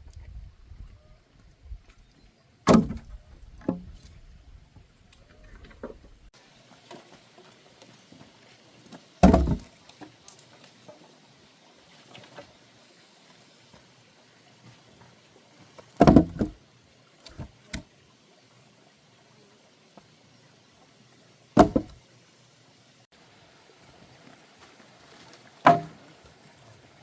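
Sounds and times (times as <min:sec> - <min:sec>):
axe chopping wood: 0:02.7 - 0:03.1, 0:09.2 - 0:09.7, 0:16.0 - 0:16.6, 0:21.6 - 0:22.0, 0:25.6 - 0:26.0.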